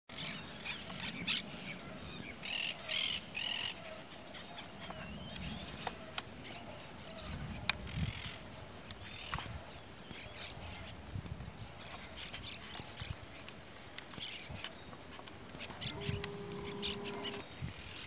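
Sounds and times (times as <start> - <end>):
sharp clicks: 15.2 - 17.4
short high bird calls: 15.6 - 17.4
faint bird chirp: 15.6 - 18.0.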